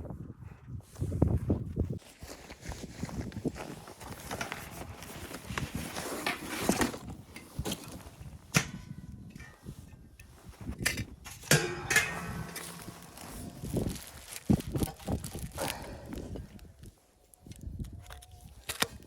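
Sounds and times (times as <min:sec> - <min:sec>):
objects knocking and clattering: 0:10.8 - 0:15.8
ringing metal clank: 0:11.5 - 0:13.6.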